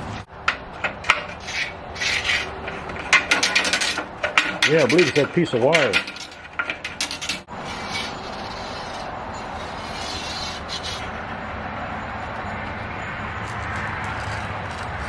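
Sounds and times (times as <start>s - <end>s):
metal rod scraping out of port: 0.5s - 11.3s.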